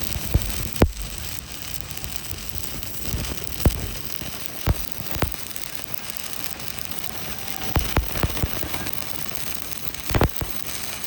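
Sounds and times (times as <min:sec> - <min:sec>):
arc welding crackling hiss: 0:00.0 - 0:11.0.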